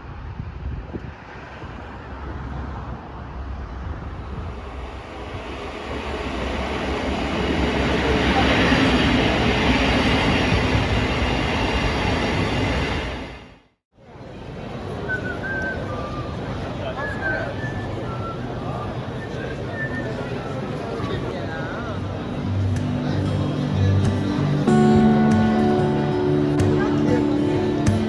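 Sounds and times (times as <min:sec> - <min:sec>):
large vehicle running noise: 0:21.3 - 0:28.0.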